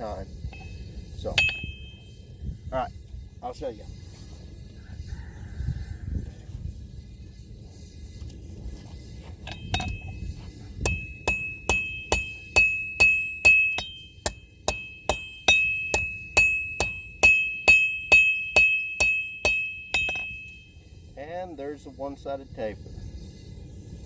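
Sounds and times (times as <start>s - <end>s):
hammer striking anvil: 0.5s - 2.1s, 9.4s - 10.2s, 10.8s - 20.7s.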